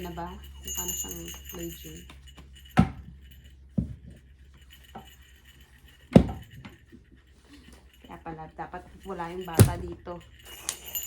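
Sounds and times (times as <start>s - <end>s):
wooden parts knocking and clinking: 9.4s - 11.0s.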